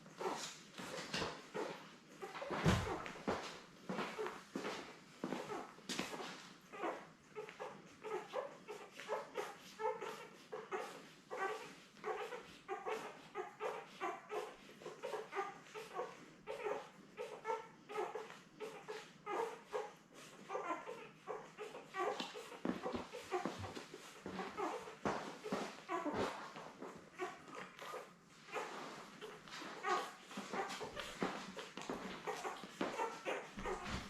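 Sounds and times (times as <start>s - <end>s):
puppies squeaking and whimpering: 0.1s - 34.0s.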